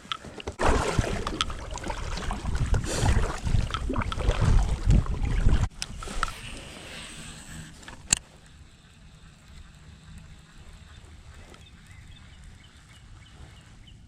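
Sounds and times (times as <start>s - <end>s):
wind buffeting microphone: 0.6s - 6.3s.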